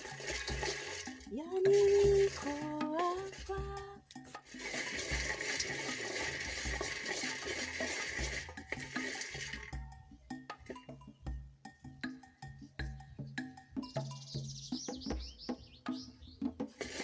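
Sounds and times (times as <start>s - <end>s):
water pouring: 0.0s - 9.8s, 16.6s - 17.0s
background music with beat: 0.0s - 16.8s.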